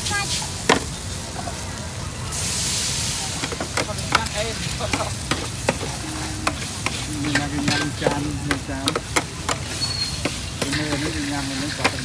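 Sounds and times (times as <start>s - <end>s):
food sizzling: 0.0s - 12.0s.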